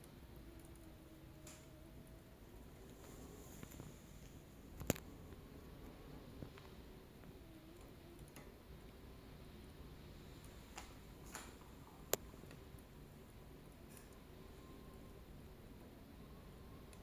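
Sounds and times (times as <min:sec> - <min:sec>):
wood fire rustling: 0:10.0 - 0:15.0.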